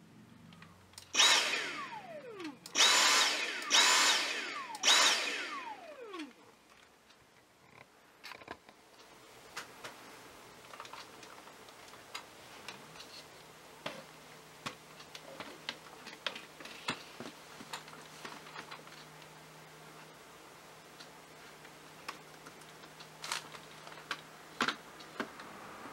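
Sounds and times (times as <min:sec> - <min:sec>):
vacuum motor whining down: 0:01.1 - 0:06.4.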